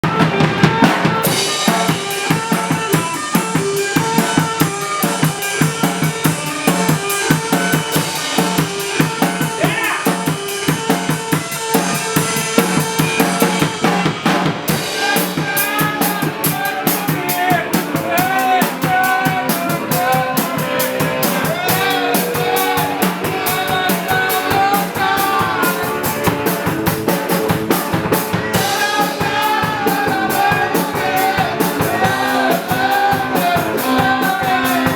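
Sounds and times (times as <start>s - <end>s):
drum kit playing a beat: 0.0s - 34.9s
pitched instruments: 0.0s - 34.9s.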